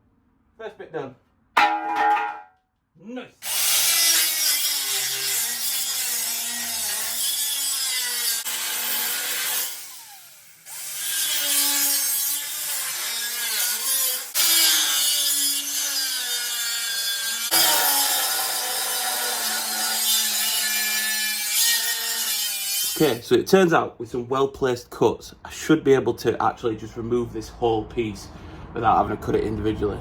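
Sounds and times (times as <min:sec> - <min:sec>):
angle grinder cutting steel: 0:03.4 - 0:23.2.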